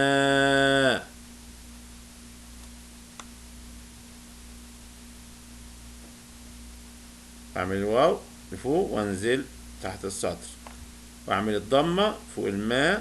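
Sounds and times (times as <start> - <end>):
man's drawn-out voice: 0.0 - 1.1, 7.6 - 10.6, 11.3 - 13.0
faint low hum: 0.0 - 13.0
steady hiss: 0.0 - 13.0
faint click: 2.6 - 3.4.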